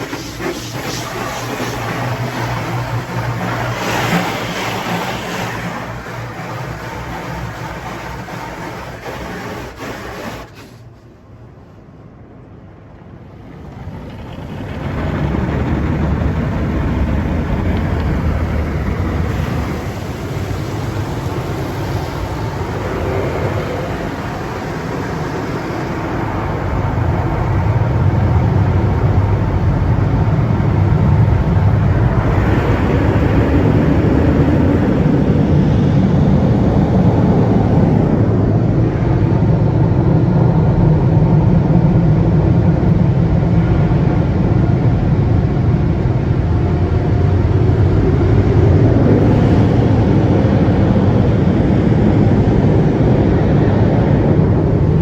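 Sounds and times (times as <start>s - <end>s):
car wash equipment rumbling: 0.0s - 55.0s.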